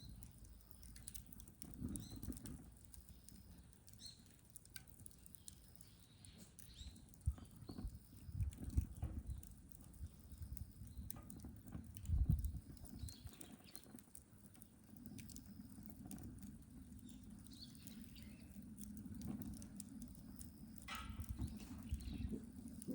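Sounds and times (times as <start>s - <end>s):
firewood crackling and popping: 0.0s - 22.9s
rush of flame: 6.4s - 22.9s.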